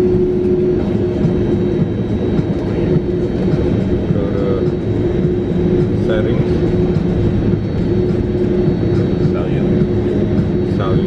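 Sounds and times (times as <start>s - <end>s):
airliner rolling on taxiway: 0.0s - 11.0s
constant cabin hum: 0.0s - 11.0s
jet engines idling: 0.0s - 11.0s.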